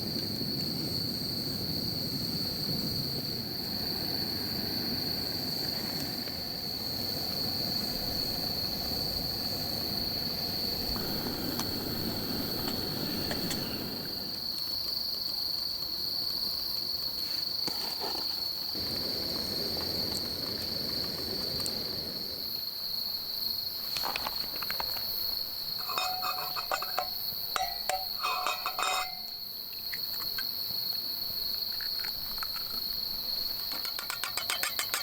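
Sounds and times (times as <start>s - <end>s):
insects trilling: 0.0s - 35.0s
low shifting rustle: 3.3s - 14.5s.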